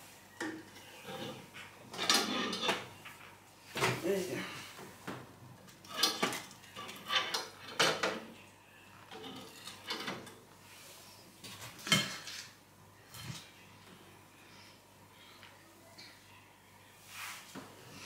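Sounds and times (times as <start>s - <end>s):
dishes knocking and clattering: 5.9s - 8.3s.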